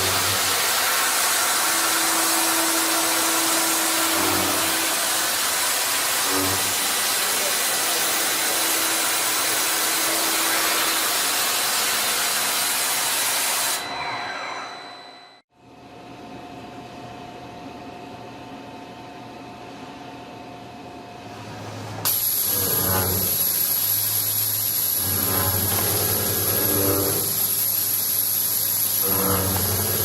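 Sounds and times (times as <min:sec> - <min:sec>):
cutting machine hissing: 0:00.0 - 0:13.8, 0:22.1 - 0:30.0
machine humming: 0:00.0 - 0:15.4, 0:21.3 - 0:30.0.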